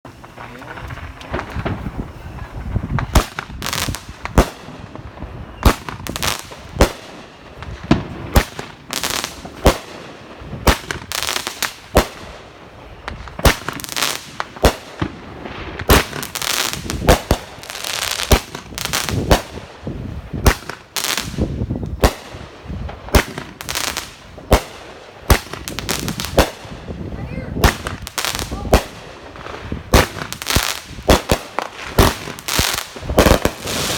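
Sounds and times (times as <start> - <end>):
rumbling noise: 0.1 - 5.6.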